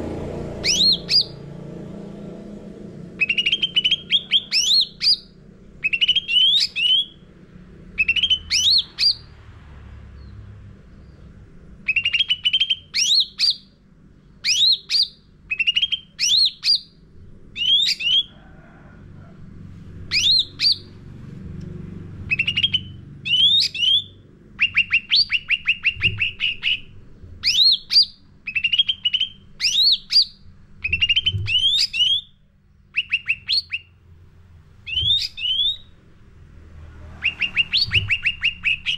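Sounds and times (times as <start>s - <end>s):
faint low hum: 0.0s - 38.9s
songbird singing rapid phrases: 0.6s - 1.4s, 3.2s - 7.2s, 7.9s - 9.4s, 10.2s - 17.0s, 17.6s - 18.3s, 20.1s - 21.0s, 22.2s - 34.0s, 34.8s - 36.1s, 37.1s - 38.9s.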